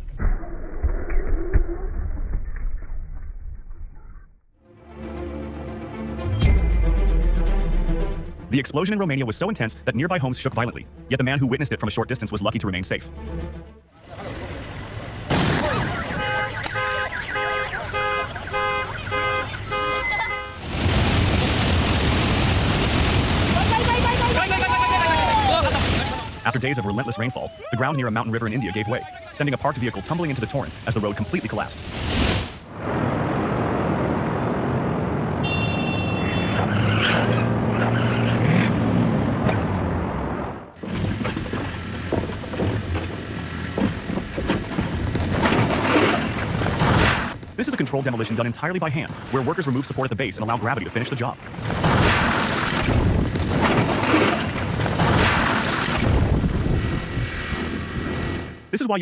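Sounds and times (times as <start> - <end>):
car alarm horn honking: 15.8 - 20.6, 35.4 - 36.6
river torrent rushing: 20.6 - 32.6
knocks and clatter: 40.8 - 47.6.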